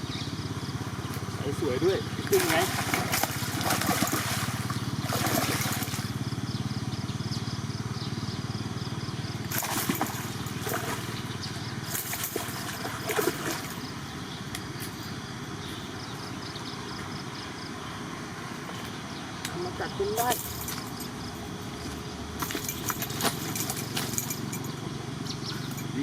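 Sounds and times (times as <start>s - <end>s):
small engine droning: 0.0s - 26.0s
fish splashing at surface: 2.3s - 6.2s, 9.5s - 11.2s, 11.9s - 13.8s.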